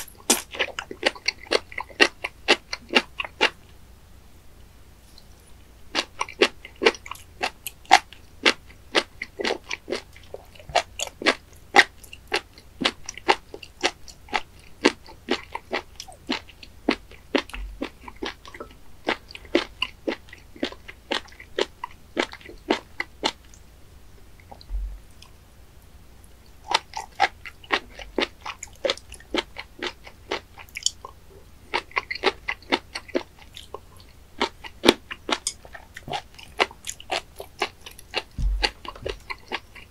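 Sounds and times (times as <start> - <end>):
crunchy wet chewing: 0.0 - 3.6, 5.9 - 23.7, 26.2 - 39.9.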